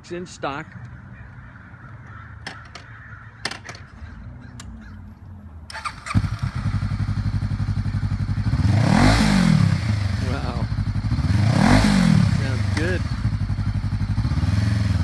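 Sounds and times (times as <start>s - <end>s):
motorcycle engine idling: 5.7s - 15.0s.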